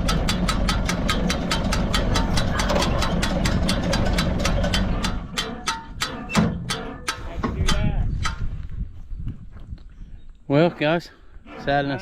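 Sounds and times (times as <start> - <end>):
hay baler rapid clicking: 0.0 - 8.0
tractor engine running: 0.0 - 8.6.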